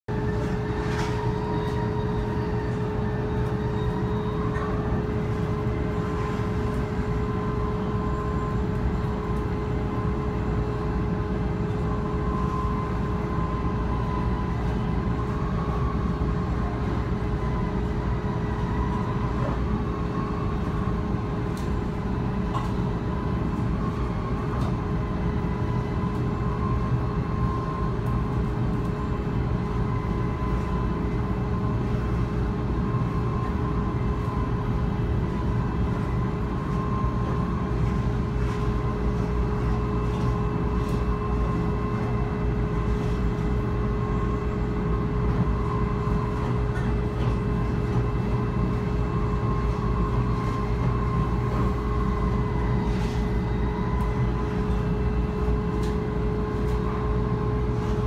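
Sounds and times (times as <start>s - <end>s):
constant hum: 0.1s - 58.0s
faint wavering whine: 0.1s - 58.0s
train rumbling: 0.1s - 58.0s.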